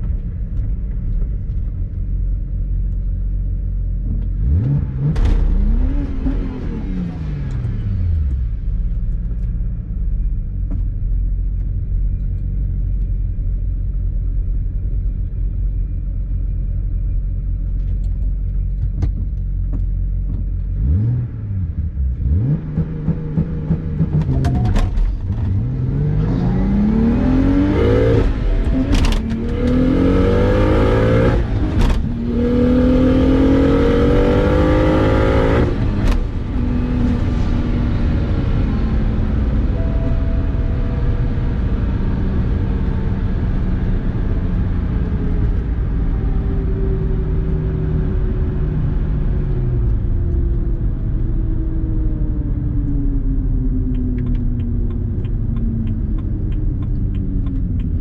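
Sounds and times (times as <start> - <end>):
car engine revving and accelerating: 4.0 - 8.8, 20.3 - 58.0.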